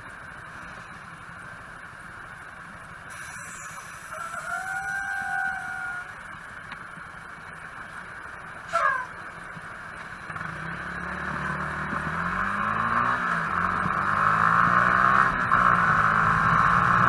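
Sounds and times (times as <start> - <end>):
road and wind noise: 0.0 - 17.0
vehicle engine running: 0.0 - 17.0.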